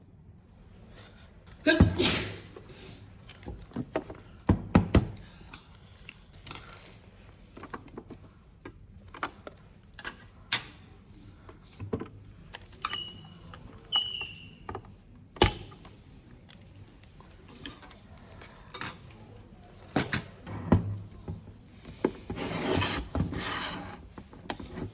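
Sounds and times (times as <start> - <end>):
tools and parts clicking and knocking: 3.2 - 10.8, 17.0 - 19.1.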